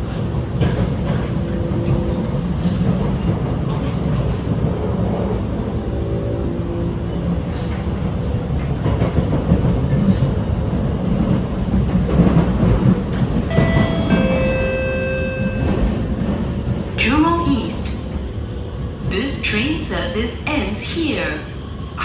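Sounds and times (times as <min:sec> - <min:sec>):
train wheels rumbling on track: 0:00.0 - 0:22.0
rail joint clicks: 0:07.5 - 0:18.2.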